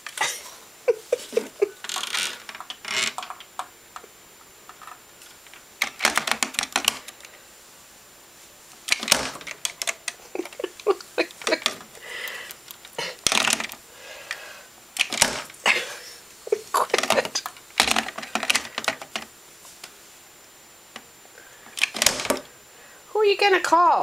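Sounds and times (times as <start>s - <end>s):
plastic telephone clicking and clattering: 5.8s - 7.2s, 8.9s - 11.9s, 13.2s - 13.8s, 15.0s - 15.5s, 17.0s - 19.3s.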